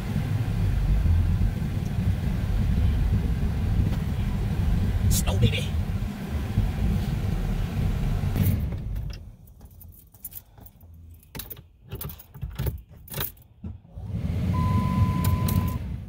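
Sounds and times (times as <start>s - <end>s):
low rumble: 0.0s - 9.2s
car keys jangling: 9.0s - 13.6s.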